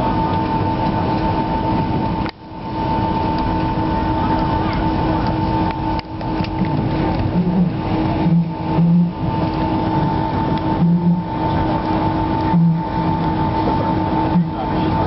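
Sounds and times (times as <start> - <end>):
aircraft cabin hum: 0.0 - 15.0
short low tones: 6.3 - 15.0.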